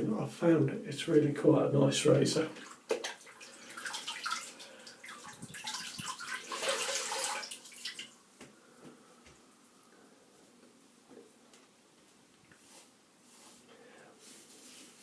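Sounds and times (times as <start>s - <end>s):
water splashing at a sink: 2.5s - 8.2s.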